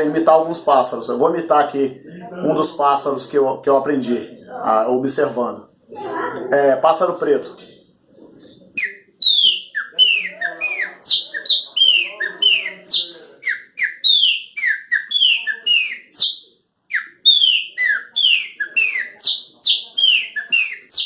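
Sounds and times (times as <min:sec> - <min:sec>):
man whistling birdsong: 0:08.8 - 0:21.0.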